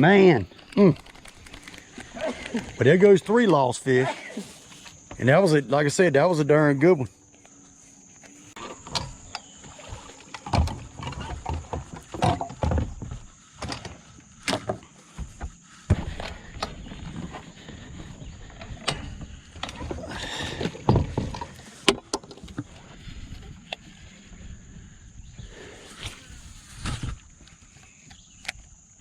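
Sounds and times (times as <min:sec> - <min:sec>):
fishing gear knocking and clicking: 0:00.5 - 0:02.8.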